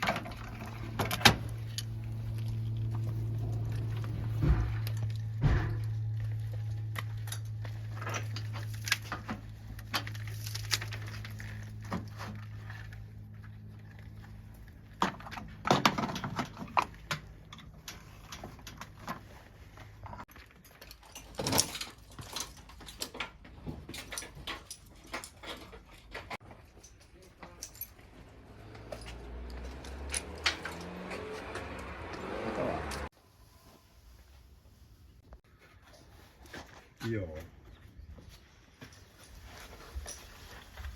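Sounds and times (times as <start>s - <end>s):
metal tools clinking and knocking: 20.1s - 31.4s.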